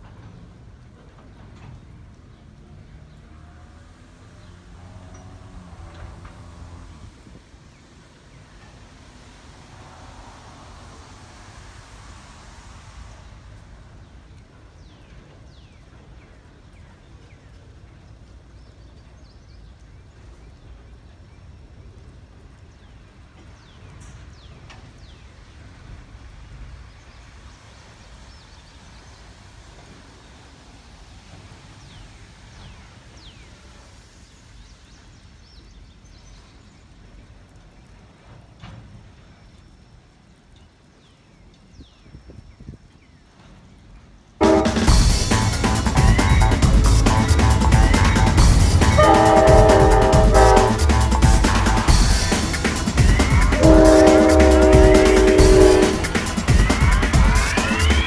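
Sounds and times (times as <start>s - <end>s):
steady low rumble: 6.2s - 14.8s, 44.4s - 58.0s
birds chirping: 44.4s - 58.0s.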